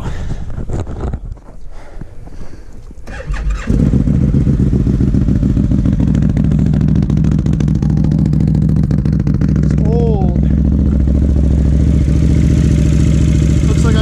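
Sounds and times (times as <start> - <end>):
atv engine running: 3.1 - 14.0.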